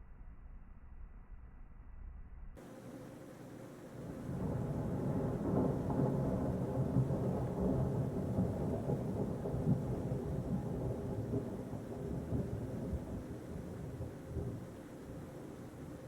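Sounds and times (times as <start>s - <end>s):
thunder rumbling: 4.0s - 16.0s.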